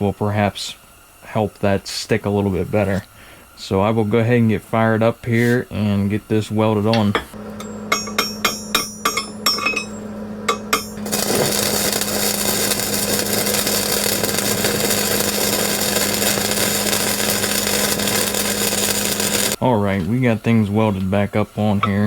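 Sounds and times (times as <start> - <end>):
steady low hum: 0.0 - 22.0
welding arc crackling hiss: 7.5 - 19.6
sharp metal clinks: 7.6 - 11.2.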